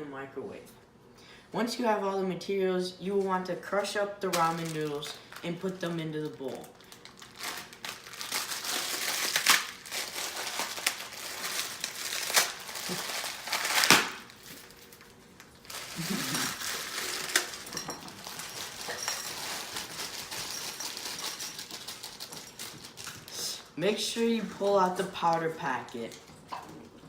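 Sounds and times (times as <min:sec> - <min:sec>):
plastic wrapper crinkling: 0:04.2 - 0:23.8
dry noodles crunching: 0:06.2 - 0:23.4.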